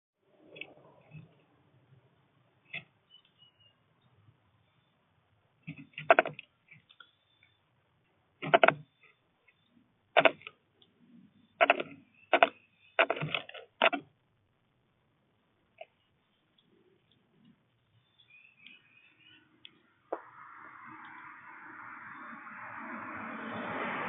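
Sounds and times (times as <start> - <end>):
birds tapping on a feeder: 5.6 - 7.6, 8.4 - 9.6, 11.5 - 14.1.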